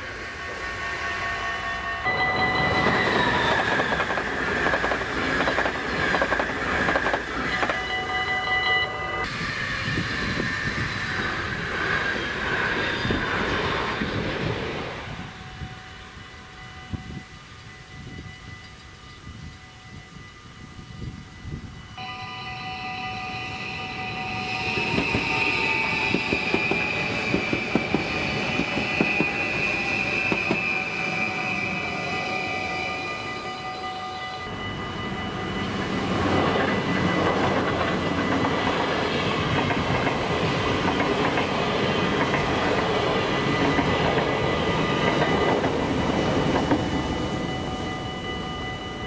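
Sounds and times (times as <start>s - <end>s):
train rushing past: 0.0s - 18.6s, 19.2s - 49.0s
level crossing bell ringing: 2.1s - 3.1s, 16.3s - 24.6s, 45.9s - 49.0s
train wheel clatter: 2.6s - 7.8s, 24.6s - 30.8s, 36.1s - 47.6s.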